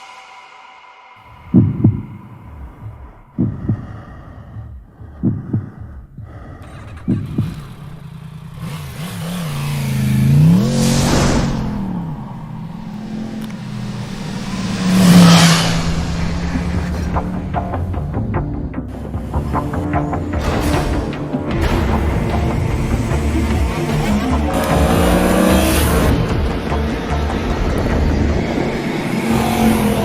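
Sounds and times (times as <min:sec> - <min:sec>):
loud whooshing passes: 0:00.0 - 0:03.8, 0:08.6 - 0:18.8
deep double thumps: 0:01.2 - 0:08.0
motorcycle engine revving: 0:06.3 - 0:30.0.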